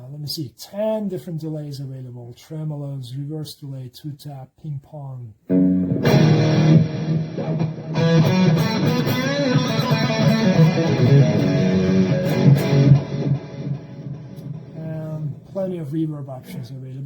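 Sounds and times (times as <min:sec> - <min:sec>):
electric guitar chords and notes: 0:05.5 - 0:15.5.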